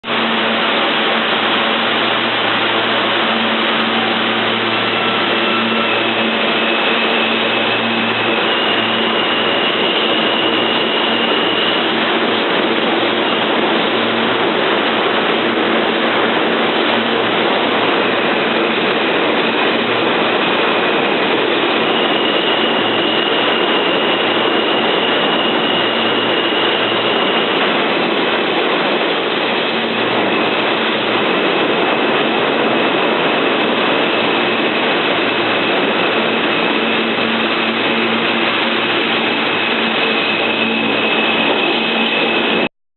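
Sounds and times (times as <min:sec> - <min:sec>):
subway train wheels rumbling: 0:00.0 - 0:42.7
thin high whining tones: 0:21.7 - 0:27.7.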